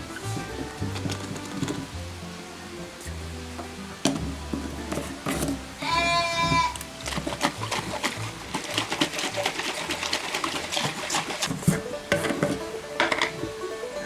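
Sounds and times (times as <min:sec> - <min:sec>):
background music: 0:00.0 - 0:14.0
lamb bleating: 0:05.8 - 0:06.9.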